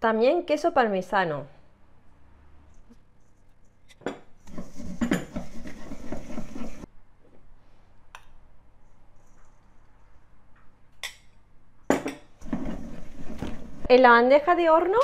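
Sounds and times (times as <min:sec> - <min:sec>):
utensil scraping in a bowl: 0:04.4 - 0:06.9, 0:12.4 - 0:13.9.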